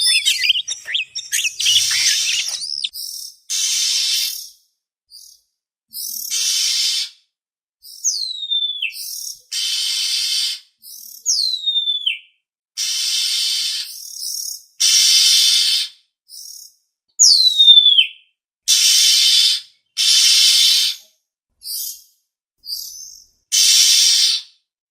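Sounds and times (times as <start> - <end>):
bird whistles sliding down: 0.0 - 2.9
harsh rasping bird chatter: 0.0 - 3.0.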